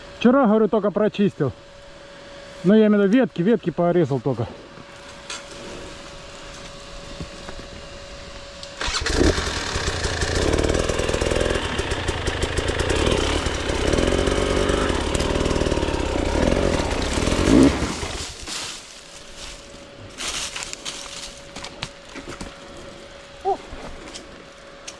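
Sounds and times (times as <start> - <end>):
two-stroke motorcycle engine revving: 8.8 - 18.4.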